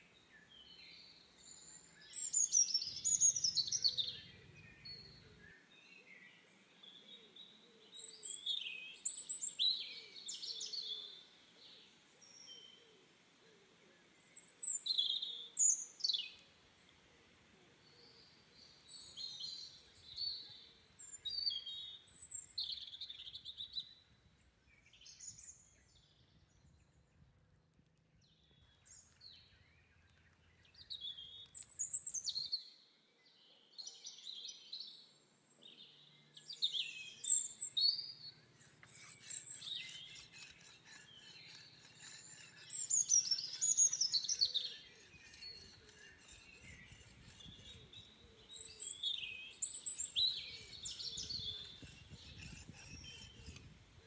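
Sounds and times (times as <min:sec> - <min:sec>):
birds chirping: 0:35.6 - 0:53.8
knife scraping on rock: 0:38.5 - 0:53.8.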